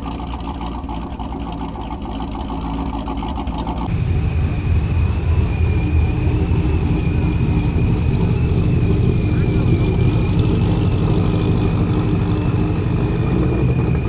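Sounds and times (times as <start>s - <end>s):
car engine rumble: 0.0s - 14.0s
steady high whine: 3.9s - 14.0s.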